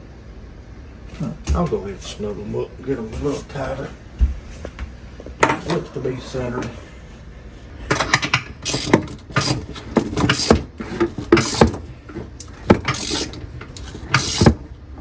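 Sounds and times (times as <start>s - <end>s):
wrench clicking and scraping: 7.8s - 14.6s.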